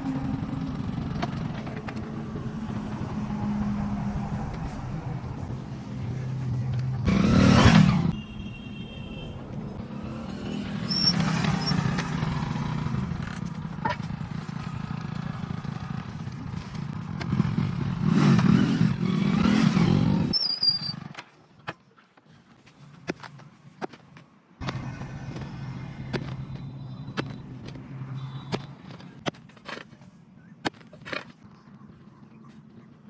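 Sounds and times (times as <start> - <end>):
vehicle engines running: 0.0 - 20.4, 24.6 - 30.5
vehicles passing close by: 0.0 - 21.2, 24.6 - 29.3.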